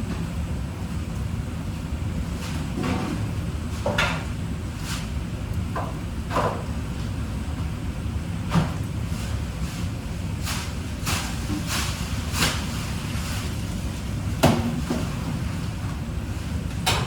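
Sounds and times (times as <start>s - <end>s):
steady low hum: 0.0s - 17.0s
clattering knocks in kitchen: 14.4s - 15.1s.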